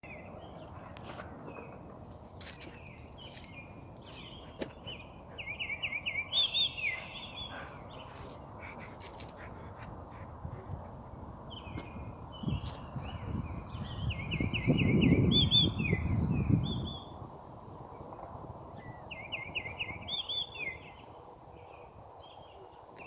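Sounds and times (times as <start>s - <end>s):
small birds chirping: 0.1s - 16.9s.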